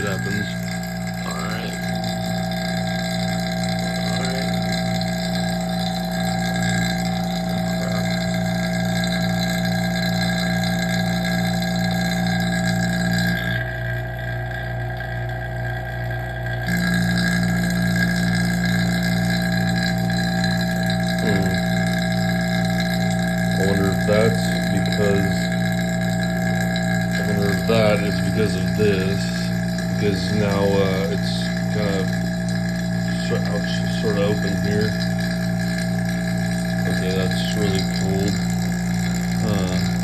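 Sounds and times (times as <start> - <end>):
vacuum pump humming: 0.0 - 40.0.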